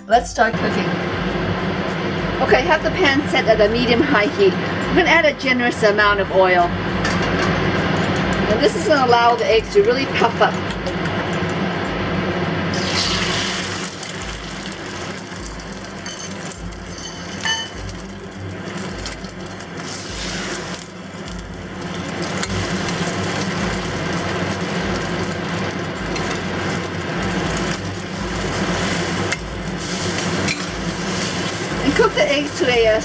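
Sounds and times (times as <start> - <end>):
eggs sizzling in oil: 12.7 - 33.0.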